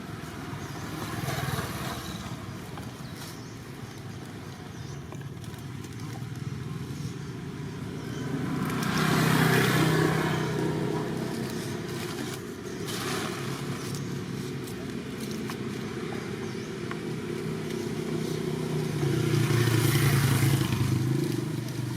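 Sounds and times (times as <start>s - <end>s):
vehicle engine passing by: 7.7s - 21.9s.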